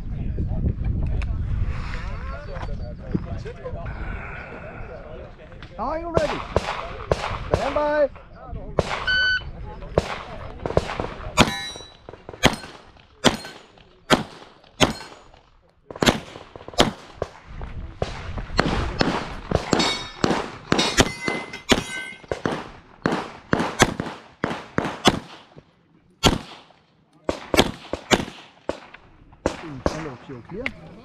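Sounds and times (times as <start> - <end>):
handgun shots: 10.0 - 15.3, 18.6 - 25.5, 27.3 - 30.1
steel targets clanging: 11.4 - 13.7, 19.6 - 22.4.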